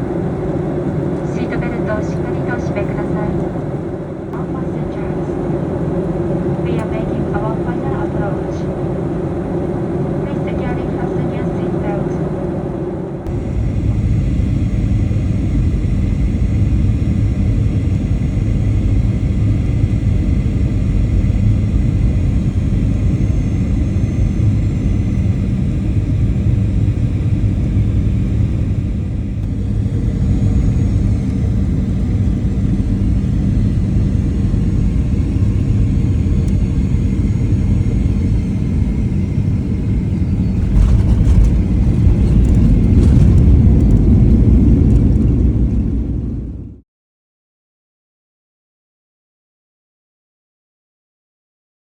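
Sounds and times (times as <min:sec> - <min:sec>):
airliner cabin engine rumble: 0:00.0 - 0:46.8
whining engine tones: 0:00.0 - 0:46.8
rough rumble: 0:38.6 - 0:46.8.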